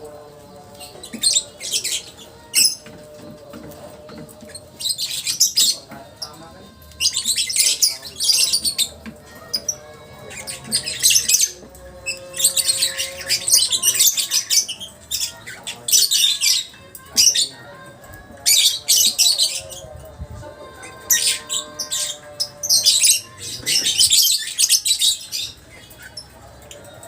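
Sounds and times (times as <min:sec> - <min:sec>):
faint background music: 0:00.0 - 0:27.0.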